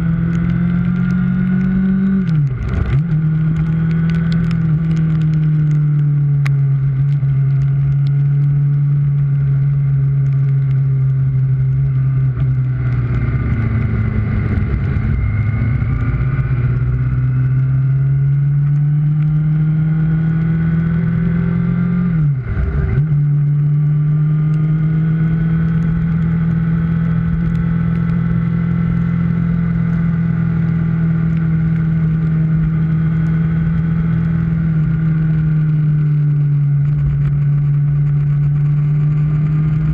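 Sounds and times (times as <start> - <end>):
motorcycle engine running: 0.0 - 39.9
road and wind rush: 0.0 - 39.9.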